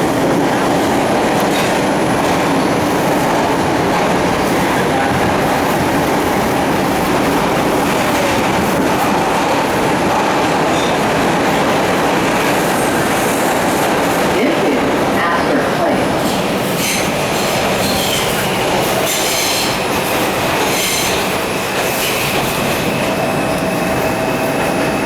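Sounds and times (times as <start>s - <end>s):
subway train rumbling on rails: 0.0s - 25.0s
track clatter: 0.0s - 25.0s.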